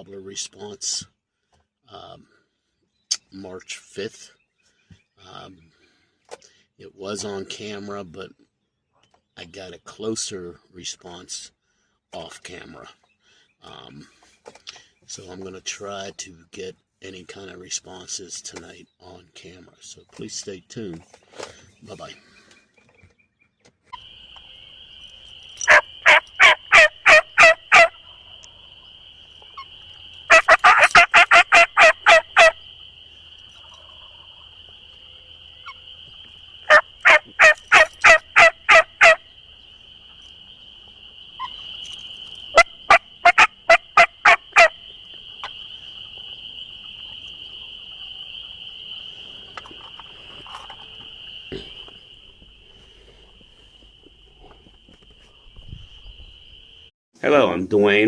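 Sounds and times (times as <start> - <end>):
turkey calls: 23.9 - 56.3.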